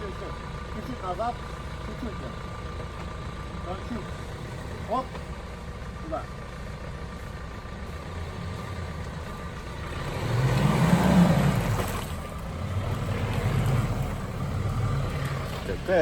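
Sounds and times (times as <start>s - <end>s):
vehicle engine revving under load: 7.2s - 16.0s.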